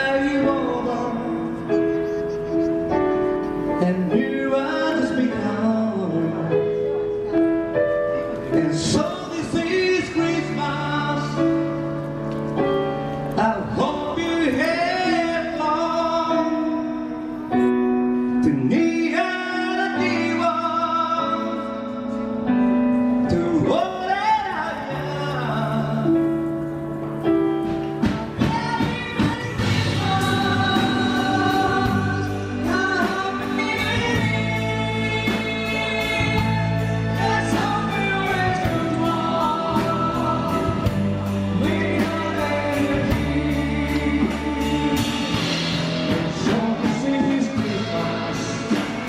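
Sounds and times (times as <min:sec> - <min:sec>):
band playing slow song: 0:00.0 - 0:49.0
choir-like vocals: 0:28.4 - 0:49.0.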